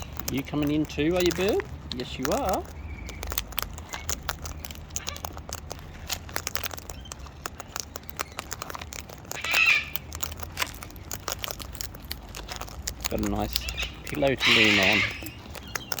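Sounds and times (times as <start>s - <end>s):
beaks cracking nuts: 0.0s - 16.0s
cockatoo squawk: 9.3s - 10.0s, 13.6s - 15.4s.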